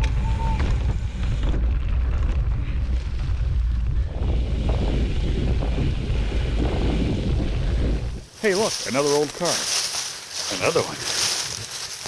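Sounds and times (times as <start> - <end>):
wind on microphone: 0.0 - 8.4
bike tyre and trail noise: 0.0 - 12.0.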